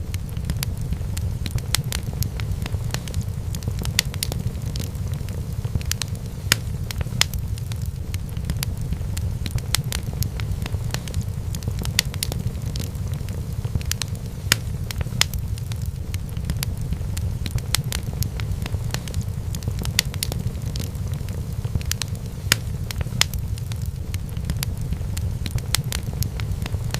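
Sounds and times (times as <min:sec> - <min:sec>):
fire crackling and popping: 0:00.0 - 0:26.9
low rumble of flame: 0:00.0 - 0:26.9.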